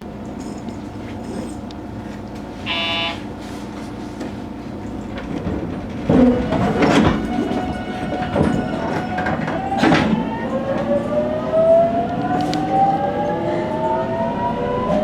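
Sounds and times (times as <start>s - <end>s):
train clanks and knocks: 0.0s - 15.0s
train running noise: 0.0s - 15.0s
short buzzer tone: 2.6s - 3.3s.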